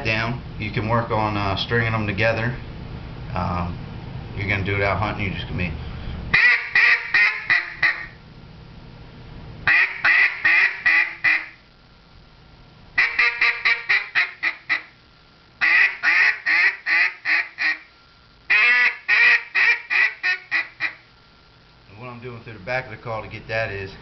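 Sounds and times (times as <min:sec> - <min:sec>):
duck call quacks: 0:06.3 - 0:08.2, 0:09.7 - 0:11.6, 0:13.0 - 0:15.0, 0:15.6 - 0:17.9, 0:18.5 - 0:21.0.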